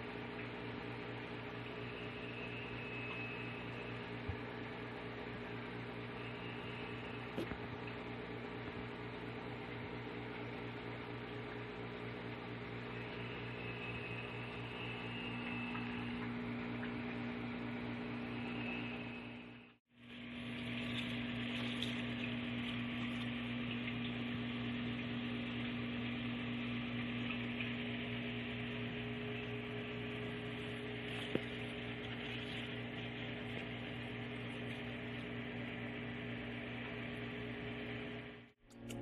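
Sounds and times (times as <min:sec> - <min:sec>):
low mechanical hum with hiss: 0:00.0 - 0:39.0
faint high whistle: 0:01.6 - 0:04.6, 0:05.8 - 0:07.5, 0:12.8 - 0:16.5, 0:17.6 - 0:19.8.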